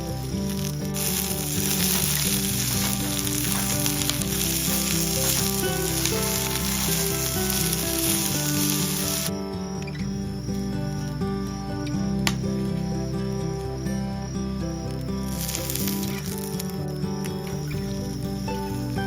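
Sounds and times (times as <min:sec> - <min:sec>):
background music: 0:00.0 - 0:19.0
food sizzling in a pan: 0:01.0 - 0:09.3.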